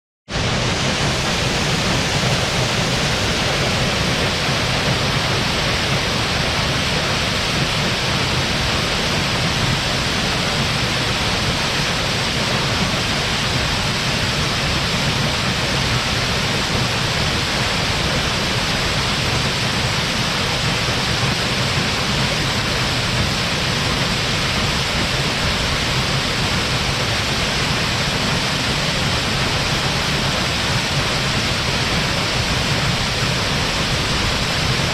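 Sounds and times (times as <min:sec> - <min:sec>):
waterfall crashing into pool: 0:00.3 - 0:34.9.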